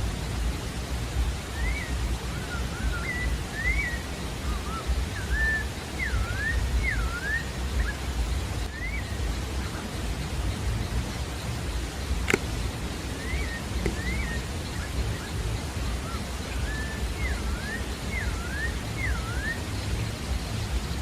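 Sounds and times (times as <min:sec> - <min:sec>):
steady hiss: 0:00.0 - 0:21.0
bird whistling: 0:01.5 - 0:09.8, 0:10.8 - 0:20.7
low rumble: 0:07.7 - 0:21.0.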